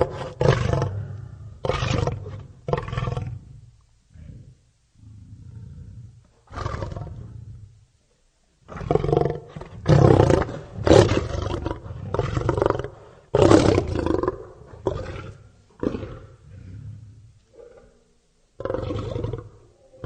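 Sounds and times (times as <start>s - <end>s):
lion roaring and grunting: 0.0s - 3.5s, 8.7s - 18.0s.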